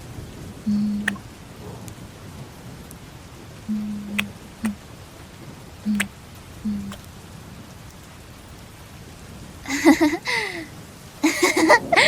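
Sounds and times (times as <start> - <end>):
rain: 0.0 - 12.0
small falling hums: 0.7 - 1.2
wet kissing smacks: 1.0 - 1.2, 3.7 - 4.8, 5.9 - 6.1.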